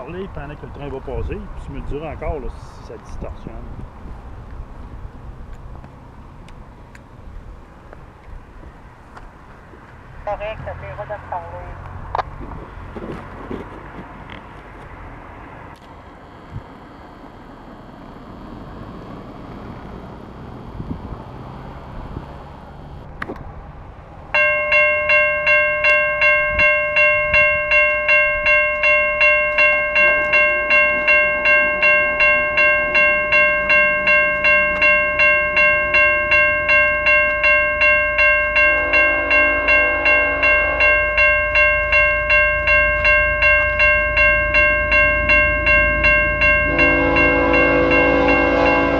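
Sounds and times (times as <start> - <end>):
level-crossing bell ringing: 10.3 - 11.8, 24.4 - 48.9.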